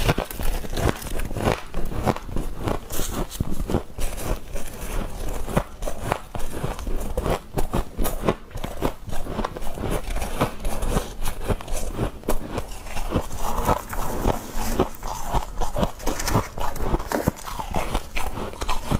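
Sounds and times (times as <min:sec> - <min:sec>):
frost being bitten and chewed: 0:00.0 - 0:18.9.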